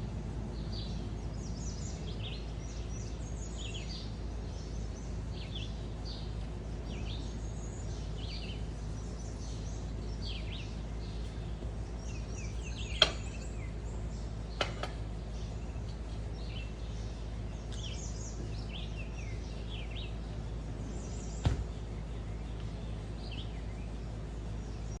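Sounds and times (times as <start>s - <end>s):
low background rumble: 0.0s - 25.0s
small birds chirping: 0.0s - 25.0s.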